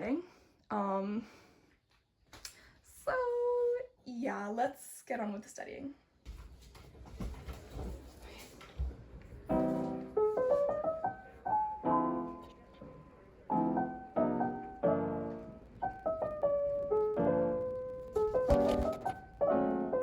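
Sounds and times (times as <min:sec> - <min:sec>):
piano music: 0:09.5 - 0:20.0.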